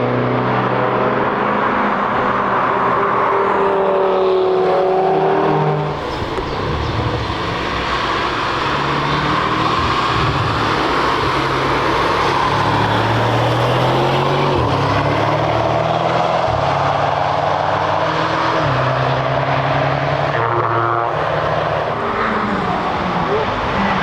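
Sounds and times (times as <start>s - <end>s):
race car engines running hard: 0.0s - 24.0s
road noise: 0.0s - 24.0s.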